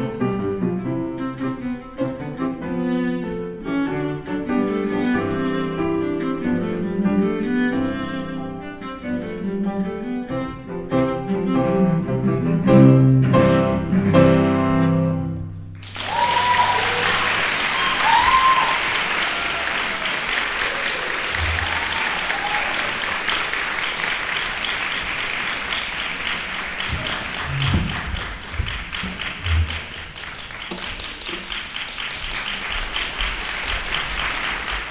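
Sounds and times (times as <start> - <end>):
audience applauding: 15.8 - 34.9
people cheering: 15.8 - 34.9.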